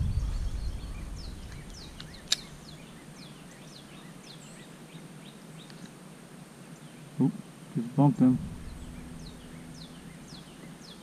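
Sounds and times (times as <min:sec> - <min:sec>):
small birds chirping: 0:00.0 - 0:11.0
sharp click: 0:01.5 - 0:02.5.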